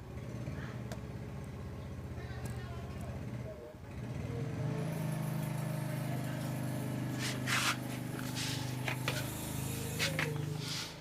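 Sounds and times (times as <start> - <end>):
low mechanical hum: 0.0 - 11.0
short hissing bursts: 7.2 - 11.0.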